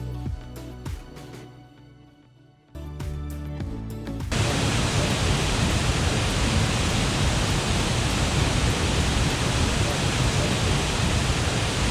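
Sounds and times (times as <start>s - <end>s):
waterfall roaring: 4.4s - 11.9s.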